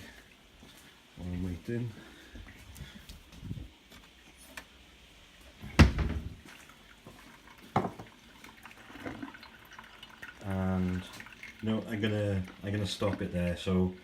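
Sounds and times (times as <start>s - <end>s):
coffee maker trickling: 6.3s - 14.0s.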